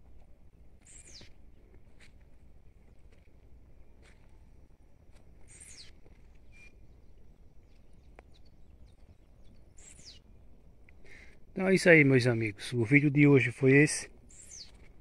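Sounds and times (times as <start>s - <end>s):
faint birdsong: 0.0s - 15.0s
low outdoor rumble: 0.0s - 15.0s.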